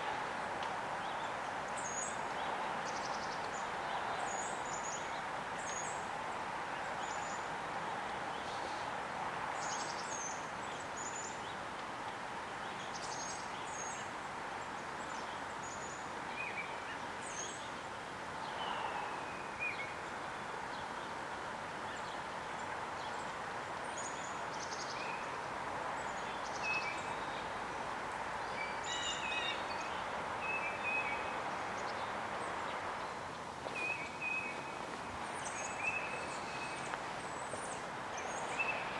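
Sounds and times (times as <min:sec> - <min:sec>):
small songbirds calling: 0:01.0 - 0:07.5, 0:09.5 - 0:11.8, 0:12.5 - 0:38.9
steady rushing noise: 0:31.2 - 0:38.9.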